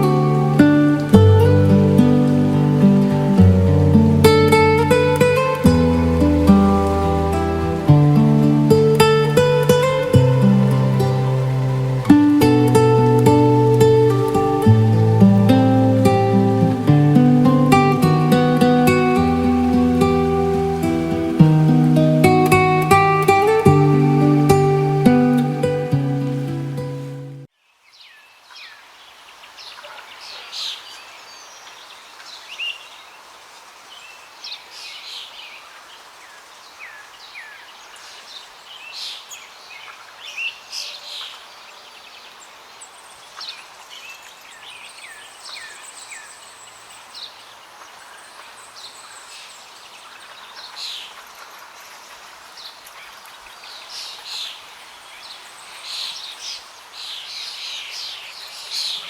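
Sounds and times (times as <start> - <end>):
background hiss: 0.0 - 59.0
birds chirping and calling: 43.2 - 59.0.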